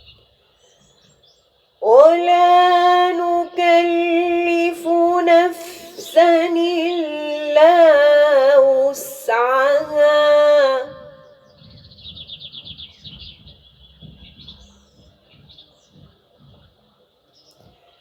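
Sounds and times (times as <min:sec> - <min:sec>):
melodic religious recitation: 0:01.8 - 0:11.8
faint low rustling: 0:11.4 - 0:18.0.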